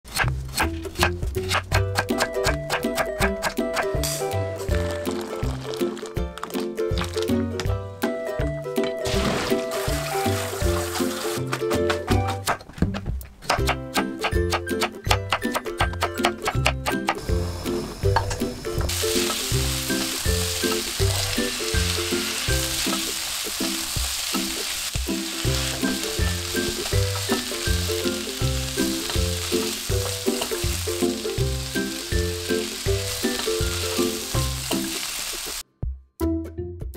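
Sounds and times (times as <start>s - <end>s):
background music with steady beat: 0.2s - 9.0s
vegetables sizzling in oil: 9.1s - 11.5s, 18.9s - 35.6s.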